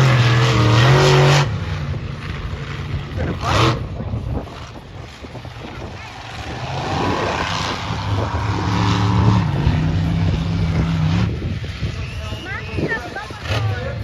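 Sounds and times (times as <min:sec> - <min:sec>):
monster truck engine running hard: 0:00.0 - 0:14.0.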